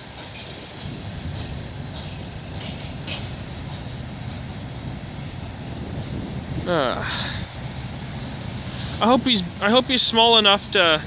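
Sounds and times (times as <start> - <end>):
wheel clicks over rail joints: 0.0 - 6.6
freight train rumbling past: 0.0 - 11.0.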